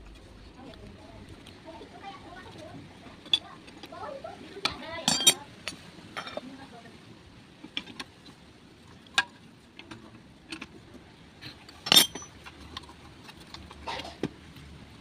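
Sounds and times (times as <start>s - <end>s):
metal tools clinking and knocking: 5.0s - 6.4s, 11.8s - 12.5s.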